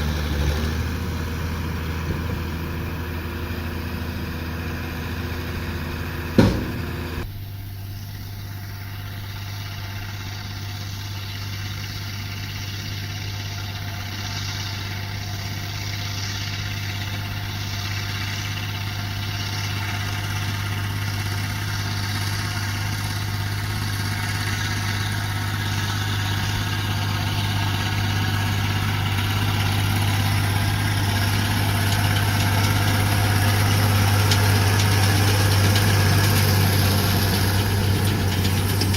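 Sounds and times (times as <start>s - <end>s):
tractor engine running: 0.0s - 38.9s
sharp loud knock: 6.4s - 7.1s.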